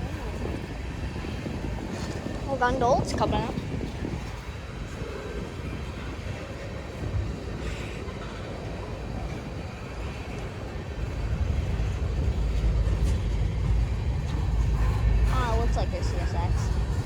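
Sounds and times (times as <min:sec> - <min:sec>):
freight train wheels rumbling: 0:00.0 - 0:17.0
faint rail clicks: 0:03.5 - 0:17.0.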